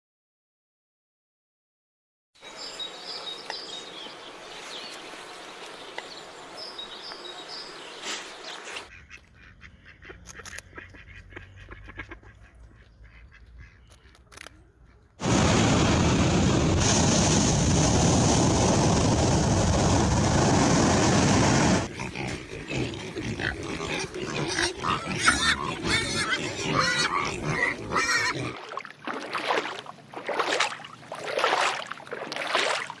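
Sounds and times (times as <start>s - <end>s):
pigs grunting and squealing: 21.8s - 28.7s.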